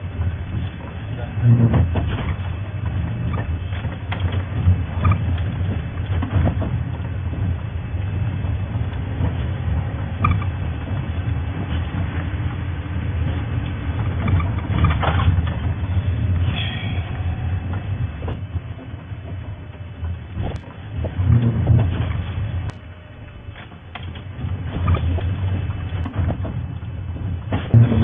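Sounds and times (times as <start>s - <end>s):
vehicle engine rumbling: 0.0s - 28.0s
knocks and rattles: 0.2s - 12.6s, 13.2s - 22.8s, 23.5s - 28.0s.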